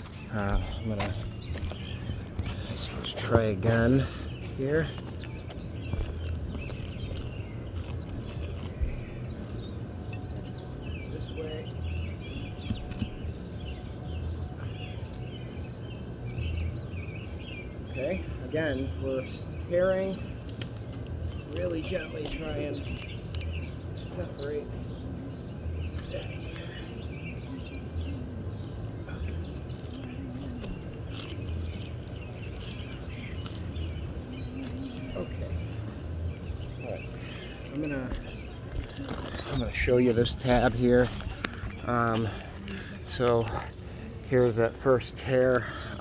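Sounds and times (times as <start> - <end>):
small birds chirping: 0.0 - 46.0
low uneven rumble: 25.2 - 46.0.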